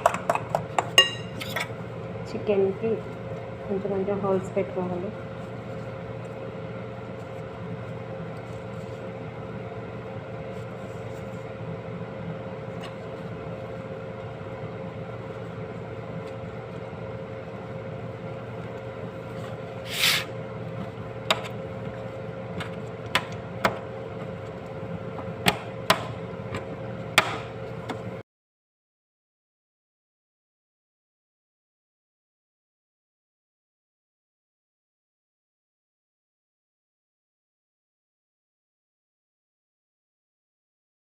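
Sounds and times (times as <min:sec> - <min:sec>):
utensil tapping chicken and dish: 0:00.0 - 0:01.4
steady background hum: 0:00.0 - 0:28.2.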